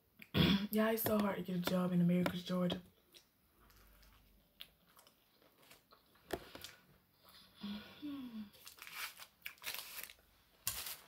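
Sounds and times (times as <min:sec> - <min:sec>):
person chewing: 0:03.0 - 0:07.4, 0:08.5 - 0:11.0
person humming: 0:07.6 - 0:08.5.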